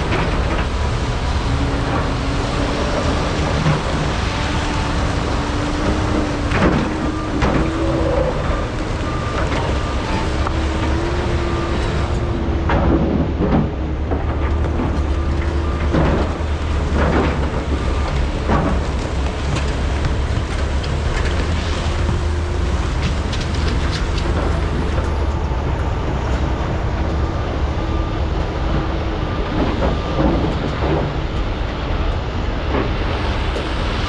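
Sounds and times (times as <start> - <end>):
excavator diesel engines running: 0.0 - 34.0.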